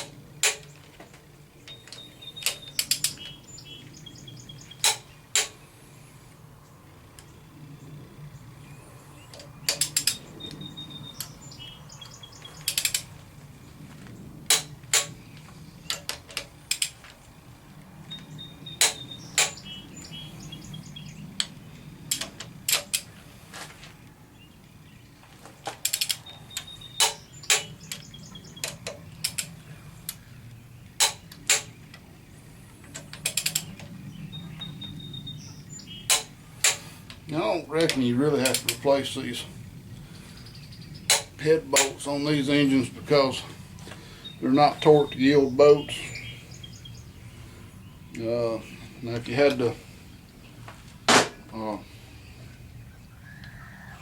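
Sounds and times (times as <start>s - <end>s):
steady low hum: 0.0s - 54.0s
torque wrench clicks: 1.9s - 3.3s, 12.6s - 13.1s, 15.9s - 17.0s, 25.8s - 28.0s, 33.2s - 33.7s.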